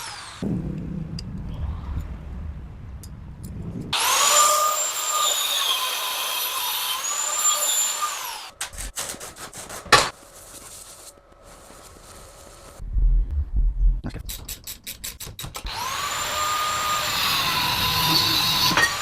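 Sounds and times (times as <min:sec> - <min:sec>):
power tool whining: 0:04.0 - 0:08.5, 0:15.6 - 0:19.0.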